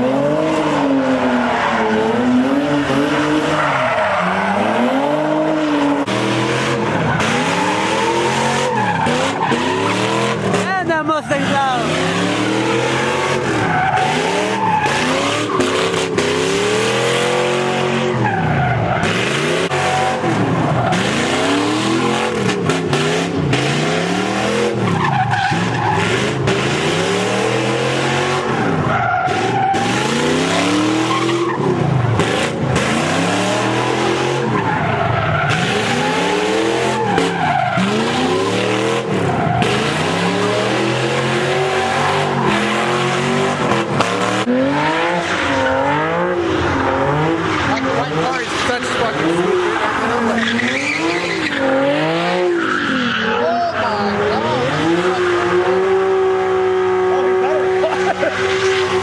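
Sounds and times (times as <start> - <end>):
car engine at high revs: 0.0 - 59.0
tire screech: 0.0 - 59.0.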